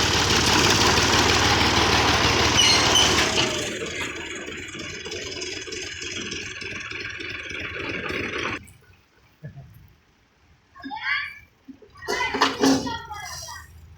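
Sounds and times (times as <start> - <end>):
tractor diesel engine running: 0.0 - 8.6.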